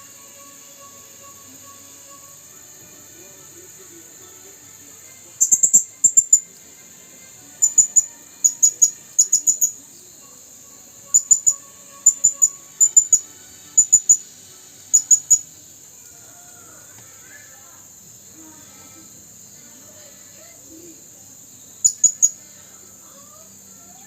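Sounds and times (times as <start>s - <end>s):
parrot shrill chirps: 5.4s - 6.5s, 7.6s - 9.8s, 11.1s - 14.3s, 14.9s - 15.5s, 21.8s - 22.4s.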